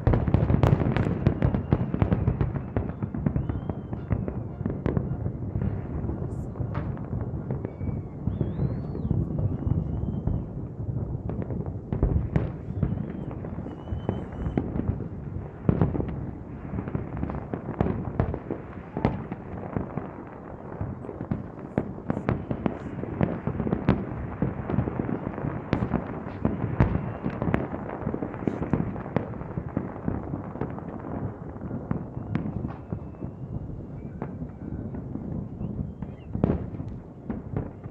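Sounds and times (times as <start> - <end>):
fireworks bangs and crackles: 0.0 - 37.9
firework whistles: 0.6 - 5.3, 7.4 - 10.6, 12.2 - 15.0, 25.7 - 27.8, 31.9 - 37.0.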